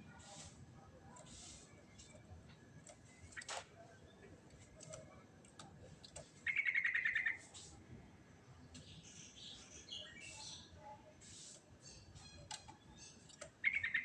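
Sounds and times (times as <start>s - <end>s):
bird singing: 6.4s - 7.5s, 8.6s - 11.0s, 11.8s - 14.0s.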